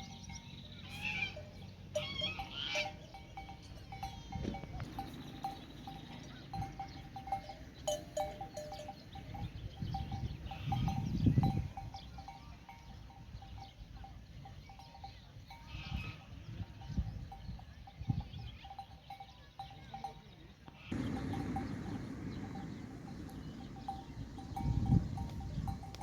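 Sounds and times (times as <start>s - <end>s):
livestock bells clinking: 0.0s - 26.0s
low rumble: 21.0s - 26.0s.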